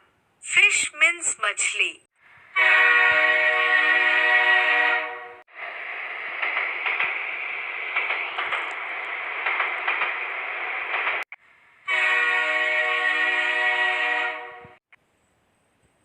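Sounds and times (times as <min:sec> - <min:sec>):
cartoon train hissing rush: 0:02.2 - 0:14.4
train whistle: 0:02.5 - 0:05.4, 0:11.8 - 0:14.8.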